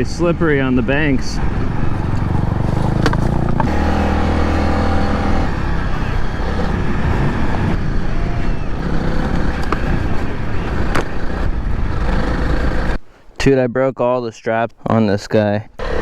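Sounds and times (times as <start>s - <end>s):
motorcycle engine running: 0.0s - 13.0s
wind rushing over microphone: 0.0s - 13.0s
sharp knocks from rough ground: 2.1s - 4.0s, 9.3s - 11.2s.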